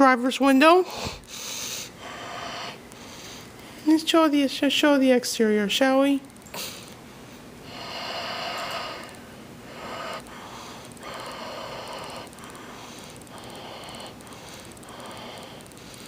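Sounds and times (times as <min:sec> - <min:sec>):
person breathing: 0:00.9 - 0:03.8, 0:06.5 - 0:16.0.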